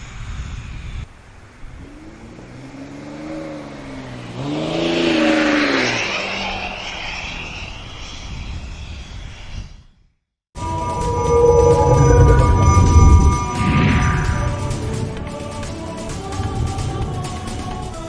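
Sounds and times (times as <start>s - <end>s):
diesel engine passing by: 1.6s - 8.4s, 10.6s - 17.2s.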